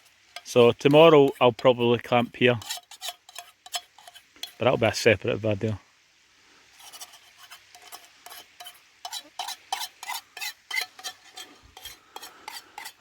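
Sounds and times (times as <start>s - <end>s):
metal utensil scraping a pan: 0.0s - 4.8s, 6.7s - 13.0s.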